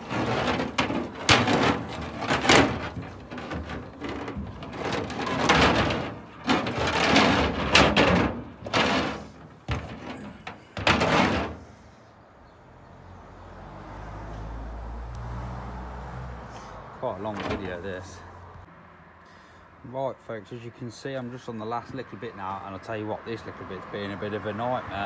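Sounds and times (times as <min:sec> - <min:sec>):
winch cable knocking and scraping: 0:00.0 - 0:11.8, 0:17.2 - 0:18.1.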